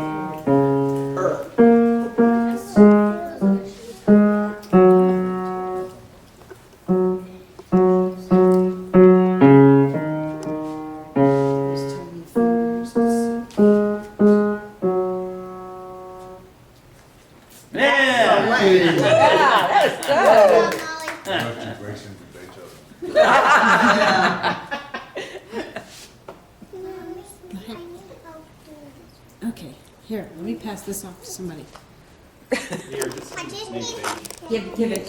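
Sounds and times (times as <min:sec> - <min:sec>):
child playing piano melody: 0:00.0 - 0:06.2, 0:06.8 - 0:16.6.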